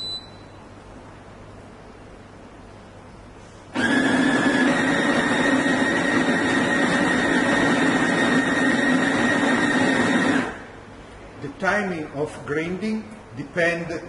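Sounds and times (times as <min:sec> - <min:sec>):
coffee grinder grinding beans: 0:03.8 - 0:10.6.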